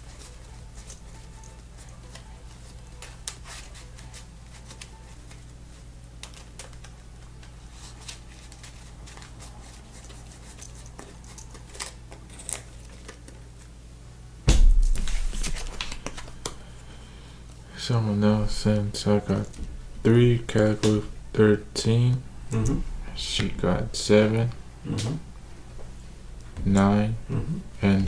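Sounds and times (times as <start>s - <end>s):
steady low hum: 0.0s - 28.0s
loud thump: 14.5s - 15.4s
trading cards clicking on table: 15.0s - 16.6s.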